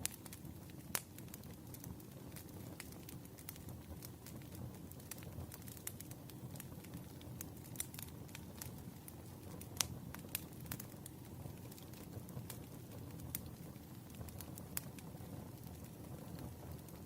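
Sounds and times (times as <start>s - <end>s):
campfire pops and snaps: 0.0s - 17.0s
low rumble of burning: 0.0s - 17.0s.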